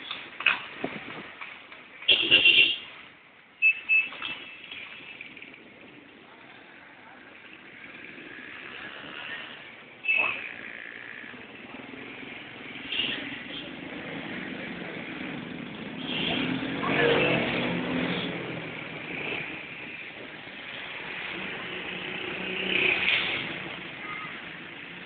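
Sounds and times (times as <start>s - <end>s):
steady background noise: 0.0s - 25.0s
motor vehicle passing by: 13.9s - 19.7s.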